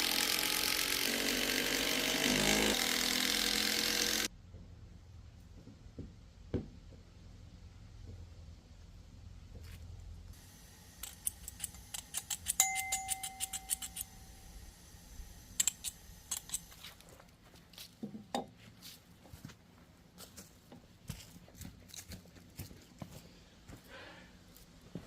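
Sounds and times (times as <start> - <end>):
sharp metallic clicks: 11.0 - 14.2, 15.5 - 16.8
ringing metal clink: 11.5 - 14.5.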